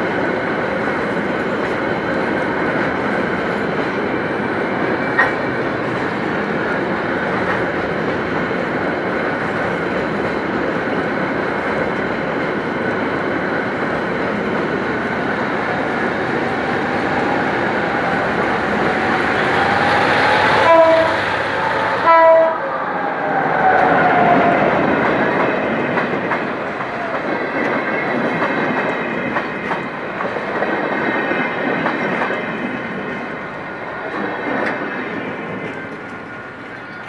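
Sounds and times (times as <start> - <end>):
trains rumbling and clacking past: 0.0 - 37.0
diesel locomotive horn blasts: 20.4 - 21.3, 22.0 - 22.6.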